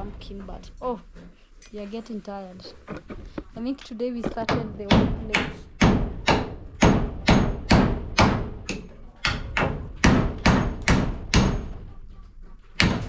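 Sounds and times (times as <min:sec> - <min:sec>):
hammer driving nail into wood: 0:04.5 - 0:11.8, 0:12.8 - 0:13.0.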